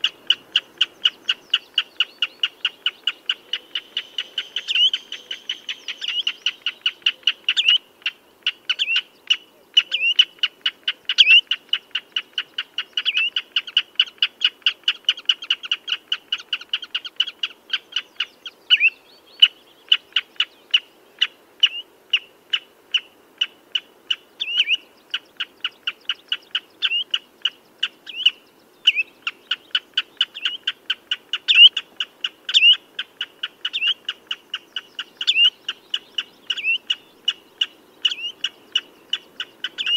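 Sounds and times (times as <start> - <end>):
redshank high piping calls: 0.0 - 39.9.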